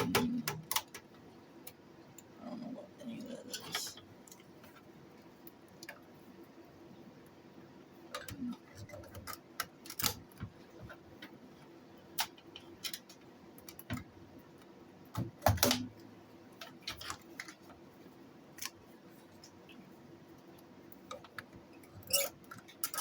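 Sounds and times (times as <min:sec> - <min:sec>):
clicks and knocks of handled parts: 0:08.1 - 0:11.4, 0:12.1 - 0:15.9, 0:16.6 - 0:17.8.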